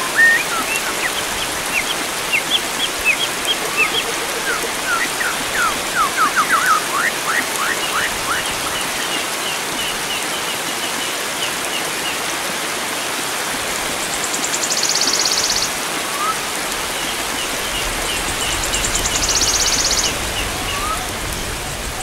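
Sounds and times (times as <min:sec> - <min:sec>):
flowing water rushing: 0:00.0 - 0:22.0
bird chirping: 0:18.5 - 0:21.0.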